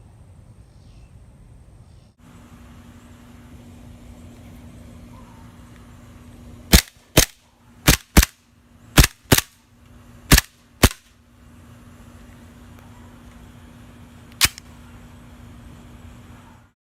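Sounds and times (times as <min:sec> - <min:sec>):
airsoft gun shots: 0:06.7 - 0:08.4, 0:09.0 - 0:09.6, 0:10.3 - 0:11.1.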